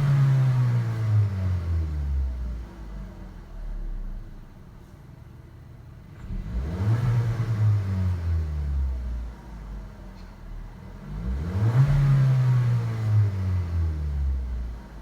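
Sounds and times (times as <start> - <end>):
car engine revving: 6.2 - 9.3, 10.9 - 14.7.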